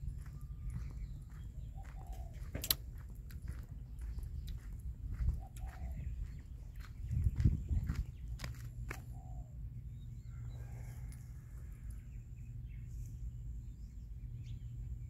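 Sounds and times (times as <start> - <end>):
faint bird chirps: 0.0 - 2.5
low steady rumble: 0.0 - 15.0.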